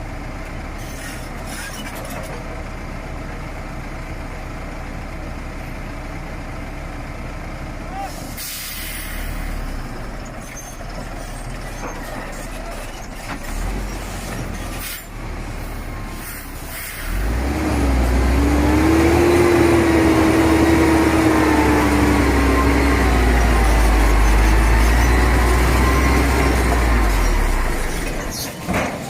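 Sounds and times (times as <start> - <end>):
heavy truck engine running: 0.0 - 29.0
truck air hisses: 8.1 - 9.6, 14.8 - 17.2
engine whine: 15.1 - 29.0.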